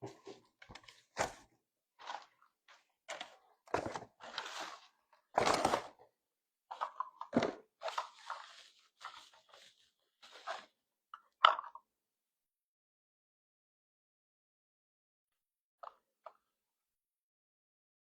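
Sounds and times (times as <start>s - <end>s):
packaging crunching and knocking: 3.2s - 6.0s.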